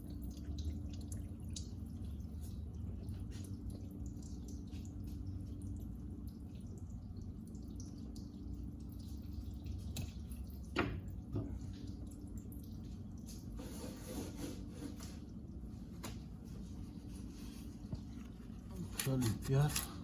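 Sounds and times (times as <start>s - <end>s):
steady low hum: 0.0s - 13.6s
coolant dripping: 0.0s - 13.7s, 14.6s - 20.0s.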